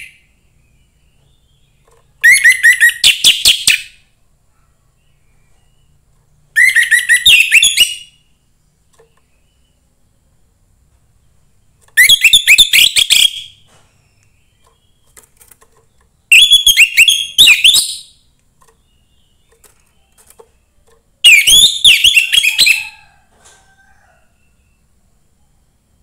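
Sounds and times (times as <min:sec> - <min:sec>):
thrush singing whistled notes: 0:06.5 - 0:08.3, 0:12.0 - 0:15.1, 0:16.2 - 0:20.2, 0:21.2 - 0:23.1.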